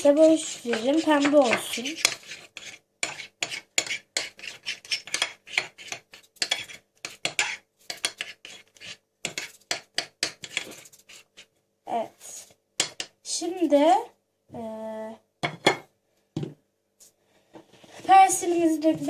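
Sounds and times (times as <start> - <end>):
spoon scraping a plate: 0.1 - 11.4.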